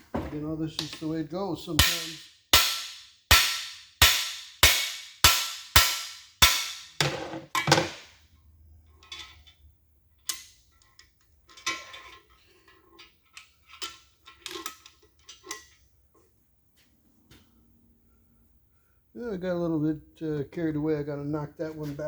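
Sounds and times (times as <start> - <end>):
hammer striking metal tool: 1.8 - 8.1.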